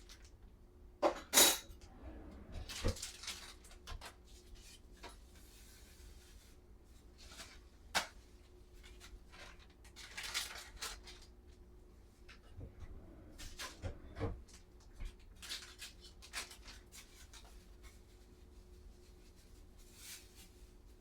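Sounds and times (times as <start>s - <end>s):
low steady hum: 0.0s - 15.5s
light rubbing and rustling: 12.4s - 21.0s.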